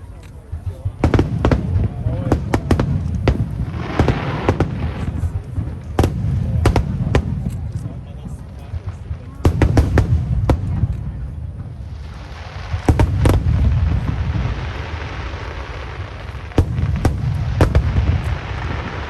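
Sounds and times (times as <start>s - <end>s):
firework shells bursting: 16.1s - 19.0s.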